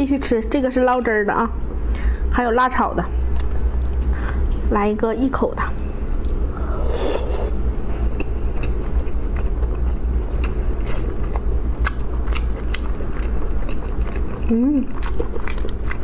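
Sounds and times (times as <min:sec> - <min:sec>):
steady low hum: 0:00.0 - 0:16.0
wet chewing: 0:06.0 - 0:16.0.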